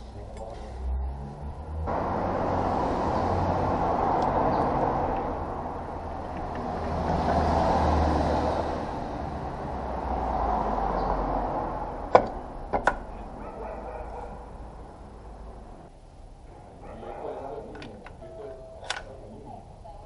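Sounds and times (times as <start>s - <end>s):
vehicle rumble and road noise: 0.0s - 20.0s
sharp knocks: 12.1s - 13.1s.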